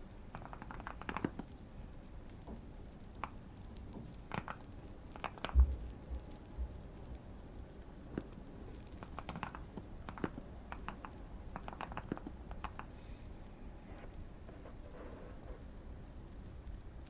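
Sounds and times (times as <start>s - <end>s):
faint fire crackle: 0.0s - 17.0s
mechanical keyboard typing: 9.0s - 12.9s.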